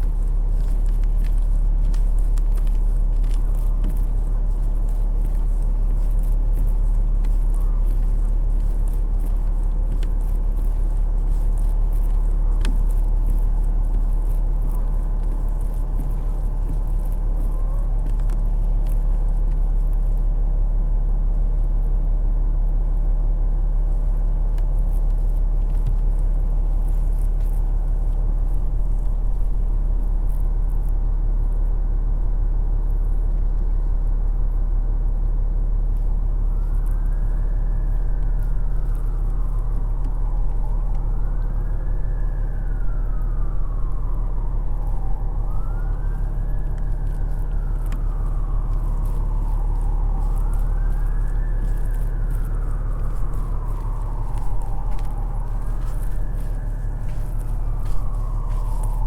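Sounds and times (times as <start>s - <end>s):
light ticks: 0.0s - 20.3s
low rumble of city traffic: 0.0s - 59.0s.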